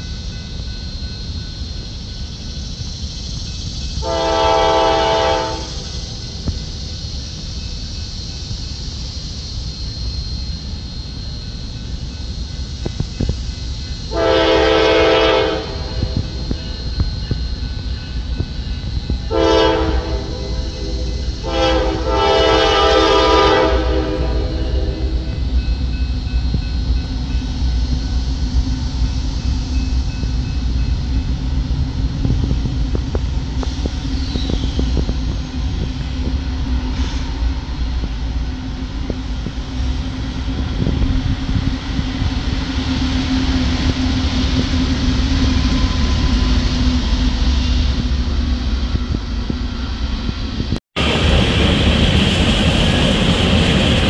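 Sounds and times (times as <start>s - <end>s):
diesel locomotive engine drone: 0.0s - 54.0s
freight cars rumbling: 25.1s - 54.0s.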